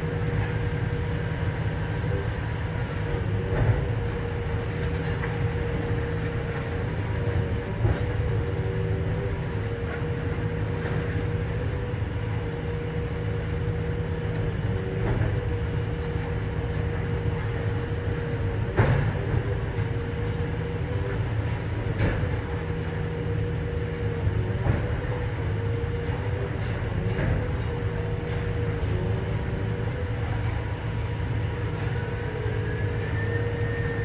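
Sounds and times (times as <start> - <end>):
scrap metal baler humming: 0.0 - 34.0.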